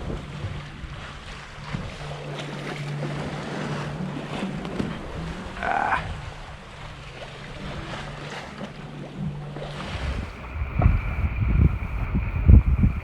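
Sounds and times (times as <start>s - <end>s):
splashing water: 0.0s - 13.0s
wind noise: 9.7s - 13.0s
low drone: 9.8s - 13.0s.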